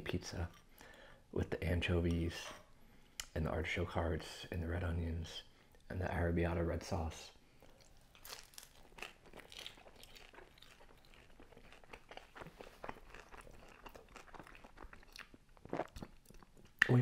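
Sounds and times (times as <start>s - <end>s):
person chewing crispy pizza: 7.6s - 16.8s.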